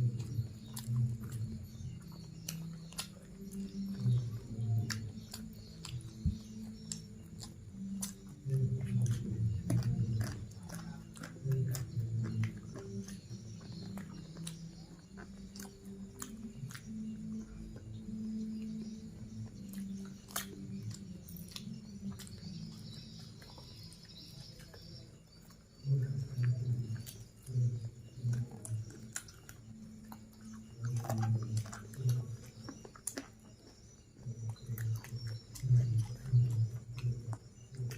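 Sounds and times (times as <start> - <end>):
chewing and biting food: 0.0 - 37.9
low droning hum: 0.0 - 37.9
mouth clicks and crunches: 0.0 - 37.9.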